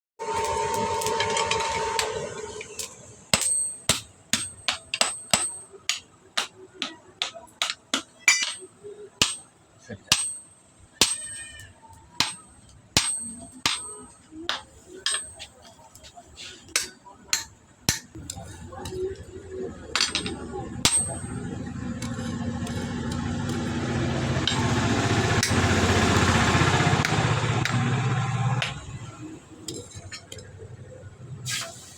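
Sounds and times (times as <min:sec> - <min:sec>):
hammer ringing on anvil: 0:20.0 - 0:22.2.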